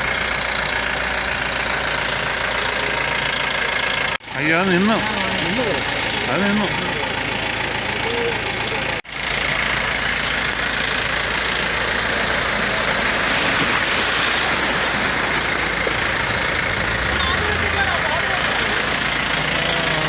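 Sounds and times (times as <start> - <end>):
vehicle engine running: 0.0 - 20.0
flowing water rushing: 4.5 - 20.0.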